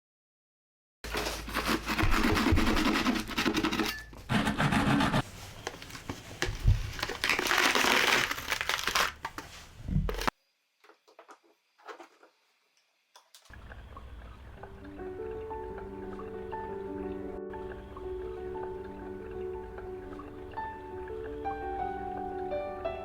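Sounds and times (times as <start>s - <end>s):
rough scratching and tearing: 1.1s - 3.8s, 4.4s - 10.3s.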